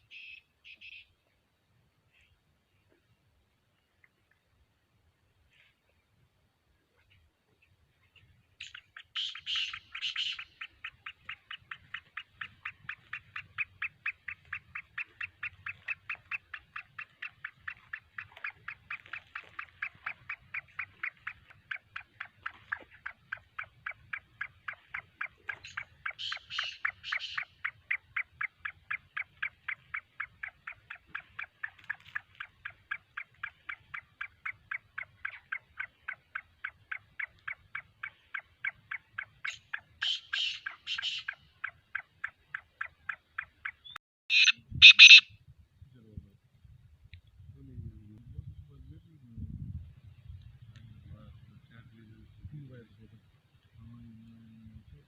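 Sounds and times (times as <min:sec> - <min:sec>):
harsh bird call phrases: 0:00.0 - 0:01.2, 0:08.2 - 0:45.3
short sharp bird notes: 0:43.7 - 0:45.3.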